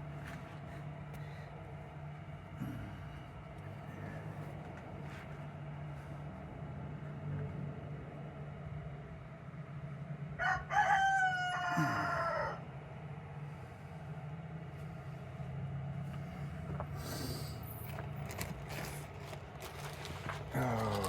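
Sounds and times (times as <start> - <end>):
steady low hum: 0.0 - 21.0
rooster crowing: 10.4 - 12.7.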